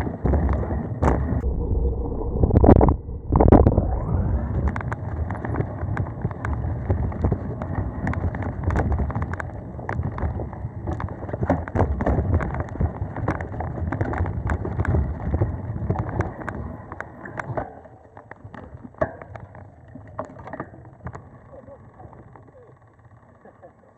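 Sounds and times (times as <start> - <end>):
wind buffeting microphone: 0.0 - 16.8
bike tyre rumble on dirt: 0.0 - 23.4
bike clicks and rattles: 4.6 - 23.9.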